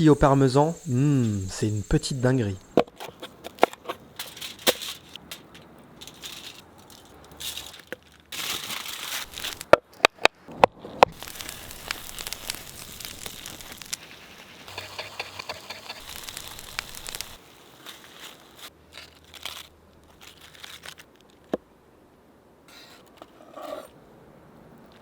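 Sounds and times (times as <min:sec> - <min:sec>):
aluminium foil crinkling: 0:03.3 - 0:09.7, 0:11.1 - 0:21.5
soft steady crackle: 0:04.2 - 0:09.8, 0:11.0 - 0:21.6.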